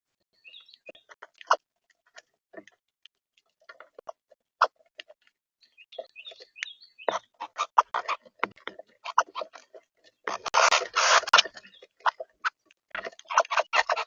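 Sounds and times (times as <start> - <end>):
birds pecking at feeder: 5.9 - 14.0.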